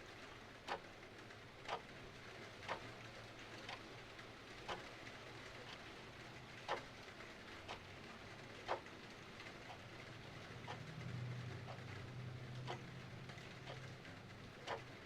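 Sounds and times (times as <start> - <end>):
clock ticking: 1.6 - 1.8, 2.6 - 2.9, 3.6 - 3.8, 4.6 - 5.0, 6.6 - 6.8, 7.7 - 7.9, 8.6 - 8.9, 10.6 - 11.0, 11.6 - 15.0.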